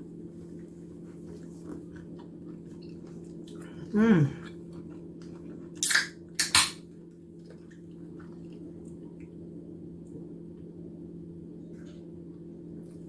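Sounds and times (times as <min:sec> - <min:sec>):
quiet chewing: 0:00.3 - 0:05.9, 0:06.9 - 0:10.7
mouth smacks: 0:05.8 - 0:06.8.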